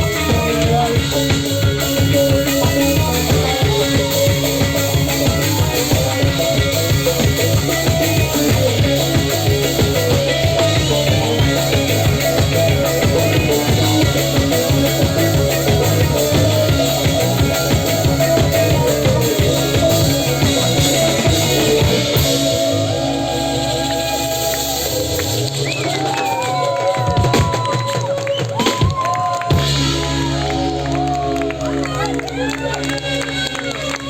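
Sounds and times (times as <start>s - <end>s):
drum kit beat: 0.0s - 31.0s
live band playing psytrance: 0.0s - 34.0s.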